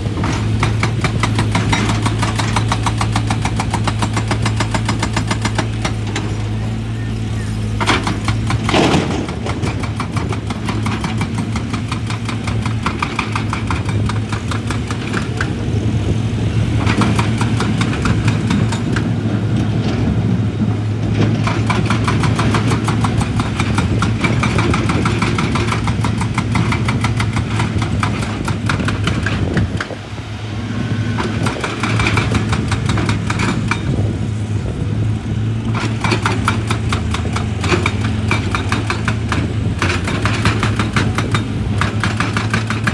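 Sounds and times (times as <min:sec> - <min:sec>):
excavator diesel engine running: 0:00.0 - 0:42.9
rapid metallic clattering: 0:35.8 - 0:42.9.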